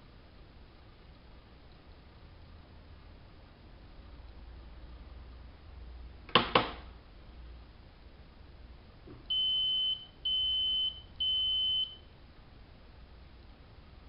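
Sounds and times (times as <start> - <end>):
washing machine beeps: 9.3 - 12.1.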